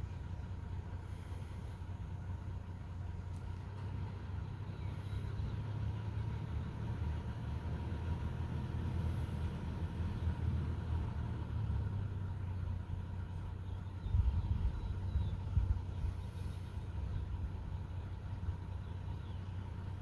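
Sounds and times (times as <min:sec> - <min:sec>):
faint bird chirp: 0:04.6 - 0:05.8, 0:12.5 - 0:20.0.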